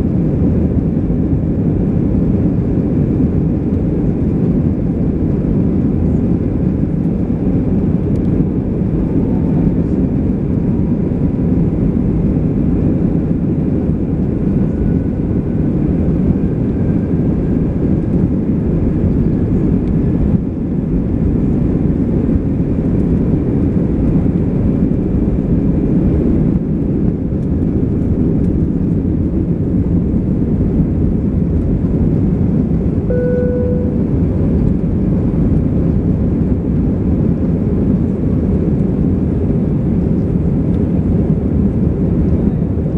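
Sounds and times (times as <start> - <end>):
airplane cabin engine roar: 0.0 - 42.9
single tone: 33.1 - 34.2.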